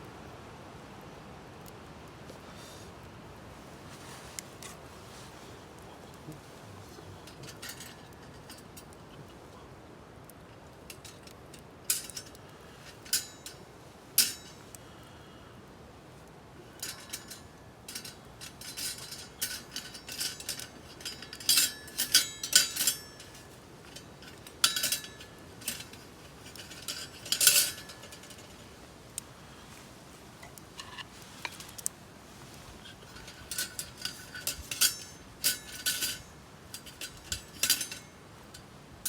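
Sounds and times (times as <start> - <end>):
metal cookware clinking: 11.9 - 12.4, 13.0 - 13.6, 14.2 - 14.6, 16.8 - 28.6, 32.8 - 38.5.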